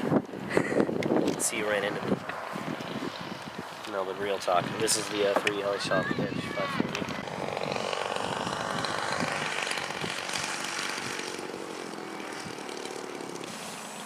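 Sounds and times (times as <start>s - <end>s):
model airplane motor whine: 1.0s - 14.0s.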